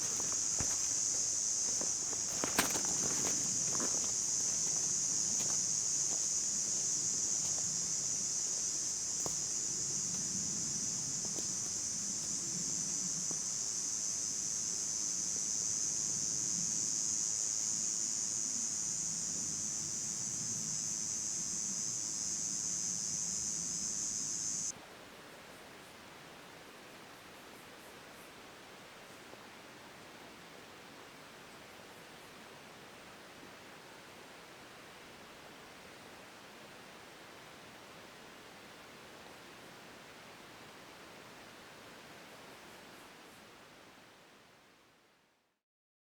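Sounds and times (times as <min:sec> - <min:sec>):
faint rustling: 0:00.0 - 0:07.8
small ticks: 0:00.0 - 0:07.8
insect chorus drone: 0:00.0 - 0:24.7, 0:27.1 - 0:44.6.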